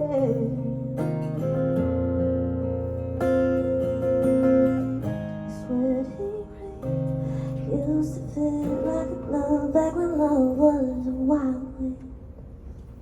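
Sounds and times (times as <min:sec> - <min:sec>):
woman singing wordlessly: 0:00.0 - 0:01.1, 0:05.5 - 0:12.1
acoustic guitar chords: 0:00.0 - 0:11.9.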